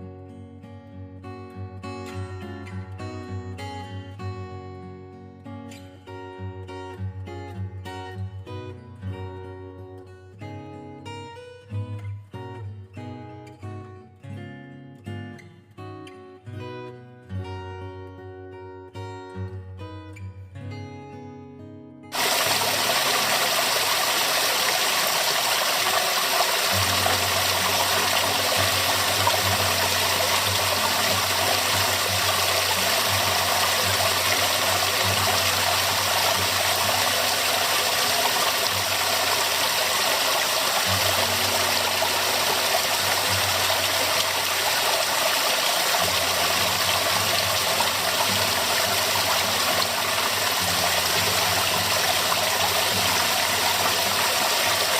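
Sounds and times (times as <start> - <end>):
waterfall rushing: 22.2 - 54.9.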